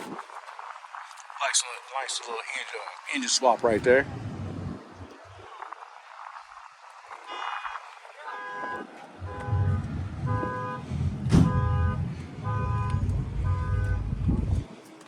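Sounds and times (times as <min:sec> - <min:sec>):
car horn beeping: 0:07.3 - 0:14.6
engine running: 0:09.2 - 0:14.7.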